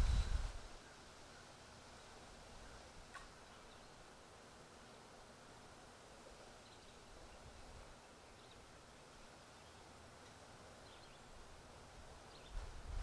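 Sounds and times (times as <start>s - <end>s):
faint outdoor background hiss: 0.0s - 13.0s.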